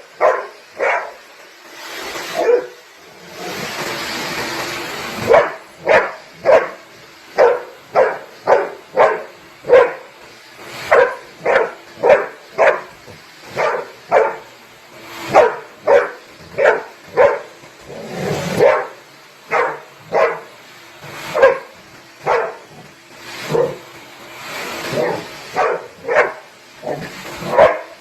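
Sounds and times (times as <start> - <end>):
dog barking: 0.2 - 1.2, 2.4 - 2.8, 5.2 - 6.8, 7.4 - 10.1, 10.9 - 14.5, 15.3 - 17.5, 18.4 - 20.5, 21.3 - 22.8, 23.5 - 23.8, 24.9 - 28.0.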